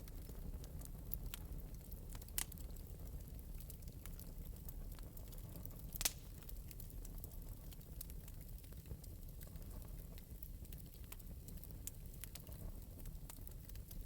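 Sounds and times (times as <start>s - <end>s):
fire crackling in a fireplace: 0.0s - 14.0s
loud fire pops: 5.8s - 7.1s.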